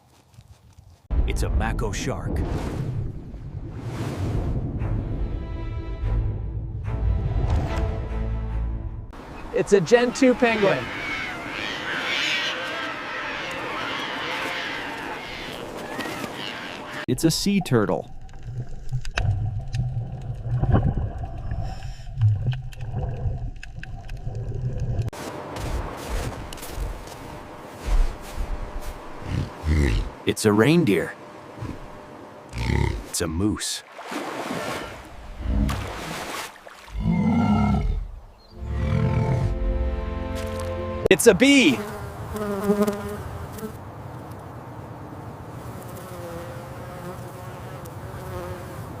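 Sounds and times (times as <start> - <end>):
bee buzzing: 41.5 - 43.8, 45.6 - 49.0.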